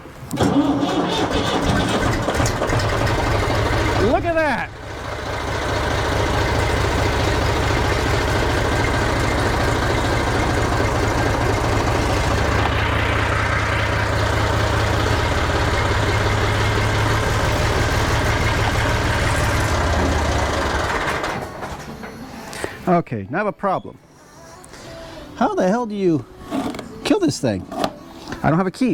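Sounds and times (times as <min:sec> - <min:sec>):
tractor engine running: 0:00.0 - 0:22.7.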